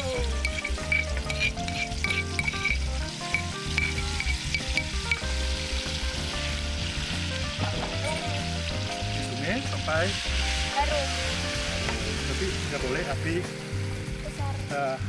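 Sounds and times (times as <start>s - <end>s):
background music: 0.0s - 15.0s
chili paste sizzling in a wok: 0.0s - 15.0s
spoon scraping a bowl: 0.4s - 5.2s.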